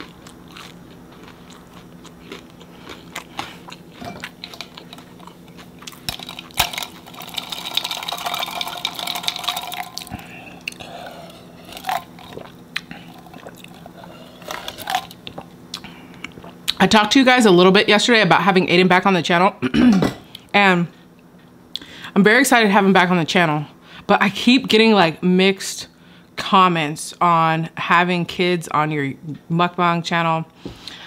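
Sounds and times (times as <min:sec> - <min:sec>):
chewing and crunching: 0:00.0 - 0:16.8
wet mouth sounds: 0:10.0 - 0:16.8.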